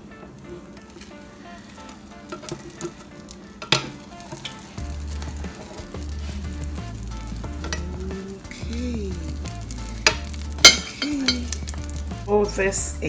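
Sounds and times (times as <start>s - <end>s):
omelet sizzling in a pan: 0.0s - 13.0s
utensil clacking against pan: 2.2s - 6.2s, 7.5s - 8.0s, 9.4s - 12.1s
music with low bass line: 4.8s - 13.0s.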